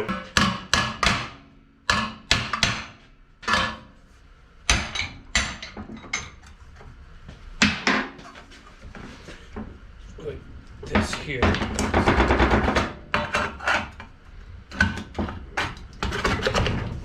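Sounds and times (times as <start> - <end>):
hammer striking steel: 0.0 - 3.9.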